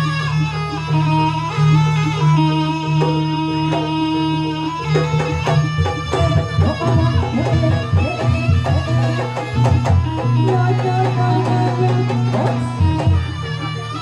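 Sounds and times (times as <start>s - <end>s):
drum strokes: 4.8s - 14.0s.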